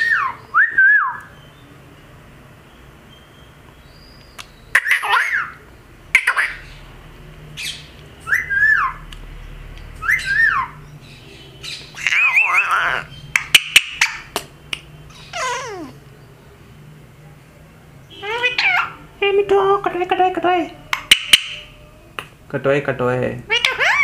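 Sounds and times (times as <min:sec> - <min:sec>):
parrot calling: 0:00.0 - 0:01.6, 0:03.1 - 0:09.1, 0:09.9 - 0:16.2, 0:18.1 - 0:21.9, 0:23.5 - 0:24.0.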